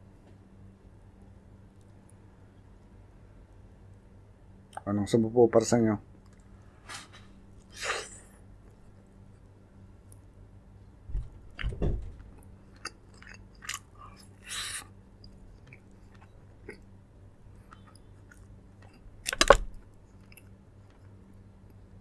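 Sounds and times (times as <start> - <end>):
person chewing food: 12.2 - 21.8.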